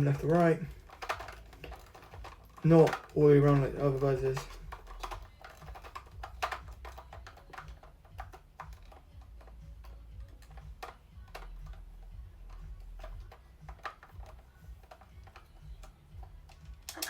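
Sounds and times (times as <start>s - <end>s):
plastic action figure clicks: 0.0s - 17.0s.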